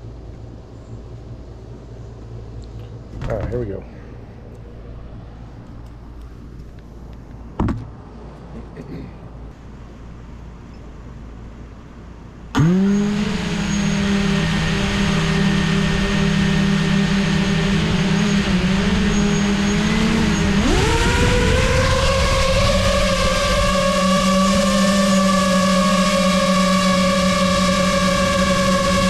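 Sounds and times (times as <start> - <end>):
drone motors whining: 12.5 - 29.0.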